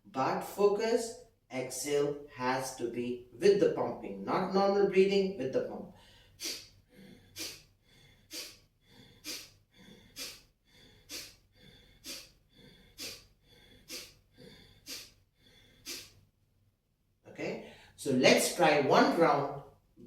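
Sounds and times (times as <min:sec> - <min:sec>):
forceful nasal exhalations: 0:05.9 - 0:16.3.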